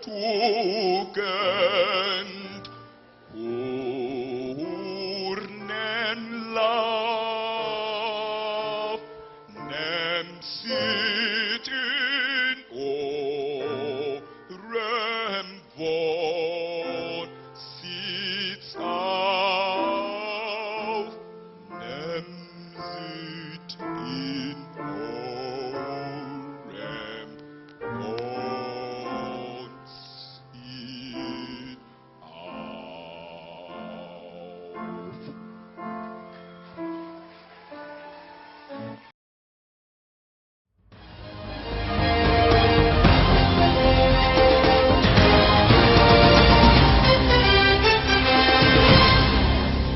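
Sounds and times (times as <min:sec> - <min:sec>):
person singing wordless phrases: 0:00.0 - 0:35.4.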